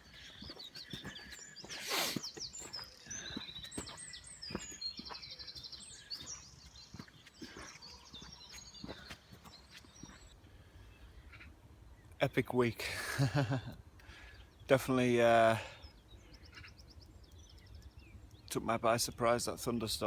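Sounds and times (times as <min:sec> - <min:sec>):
bird trill: 0:00.0 - 0:10.4, 0:15.7 - 0:18.5
footsteps on woodland path: 0:00.0 - 0:10.7
birds singing: 0:00.0 - 0:20.0.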